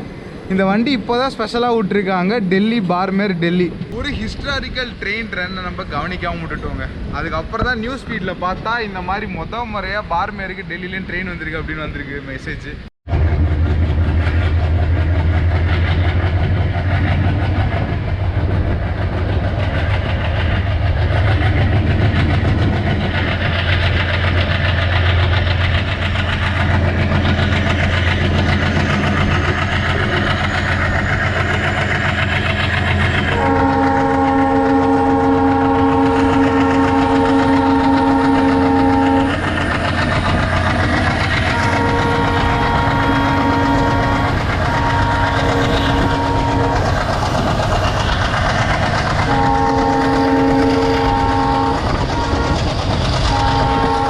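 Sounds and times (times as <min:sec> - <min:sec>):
rail noise: 0:00.0 - 0:54.0
train running at speed: 0:00.0 - 0:54.0
locomotive horn: 0:33.3 - 0:39.4, 0:41.4 - 0:47.1, 0:49.2 - 0:54.0.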